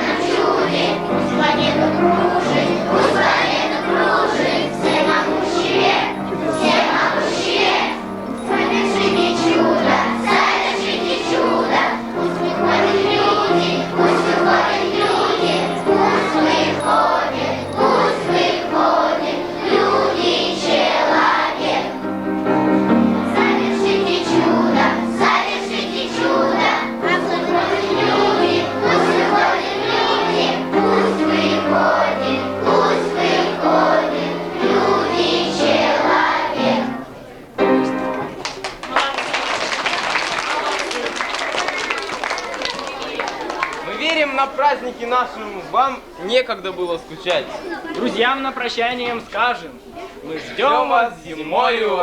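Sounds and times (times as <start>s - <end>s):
musical accompaniment: 0.0s - 38.8s
children's choir singing: 0.0s - 45.6s.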